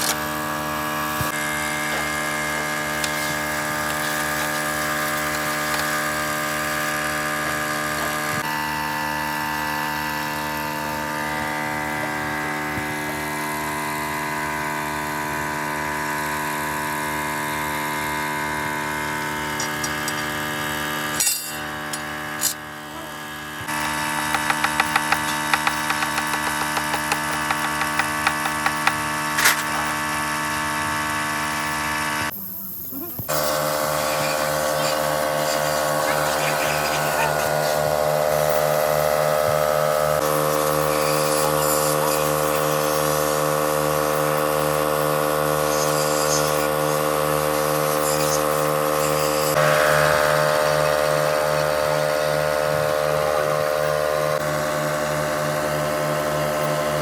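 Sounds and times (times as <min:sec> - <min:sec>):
machine humming: 0:00.0 - 0:57.0
sharp metallic taps: 0:24.2 - 0:29.0.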